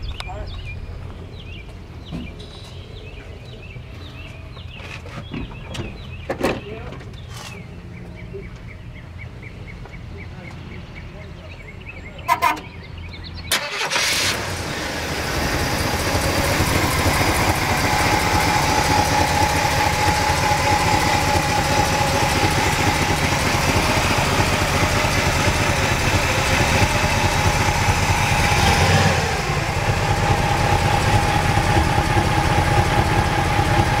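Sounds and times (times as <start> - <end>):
car engine idling: 12.3 - 34.0
engine revving: 13.5 - 34.0.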